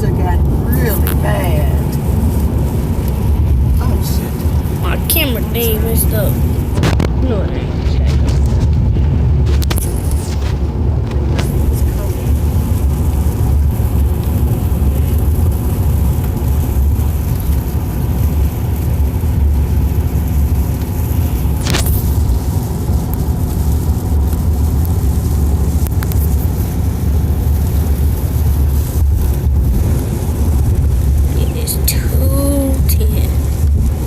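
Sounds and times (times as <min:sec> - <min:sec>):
tyre and engine rumble: 0:00.0 - 0:34.0
hiss of water from wet road: 0:11.4 - 0:31.8.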